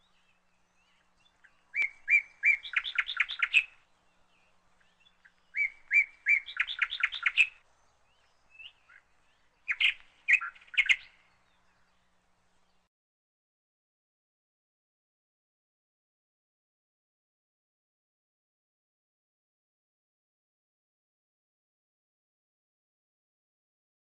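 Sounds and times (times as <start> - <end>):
bird singing: 0.0 - 12.9.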